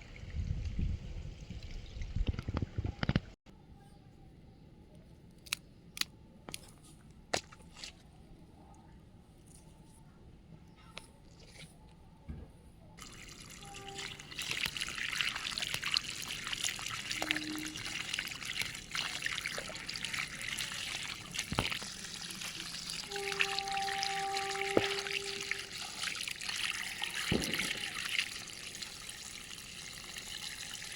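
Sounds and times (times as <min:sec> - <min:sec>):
water running and trickling: 0:13.0 - 0:30.9
brief squeaky tone: 0:23.1 - 0:25.7.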